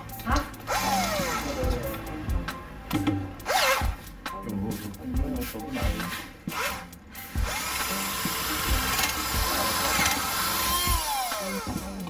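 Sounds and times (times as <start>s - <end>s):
electric drill boring into wood: 0.7s - 1.6s, 7.4s - 11.9s.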